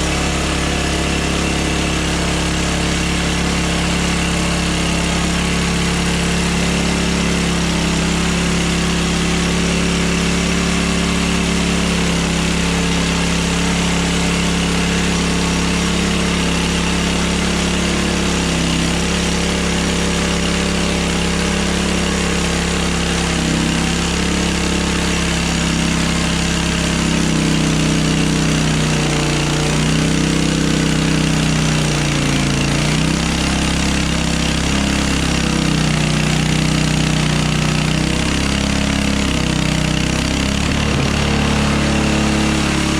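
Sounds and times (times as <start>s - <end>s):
sawmill engine running: 0.0s - 42.9s.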